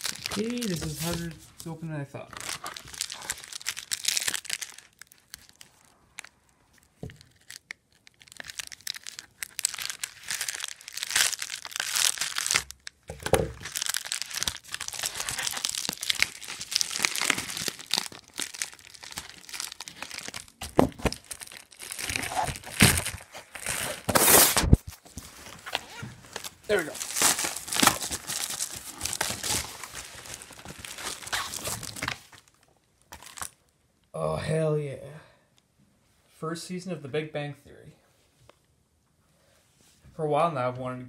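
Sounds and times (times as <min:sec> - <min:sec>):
packaging ripping: 0:00.0 - 0:01.4, 0:02.3 - 0:33.6
packaging crinkling: 0:00.0 - 0:01.7, 0:02.3 - 0:33.7.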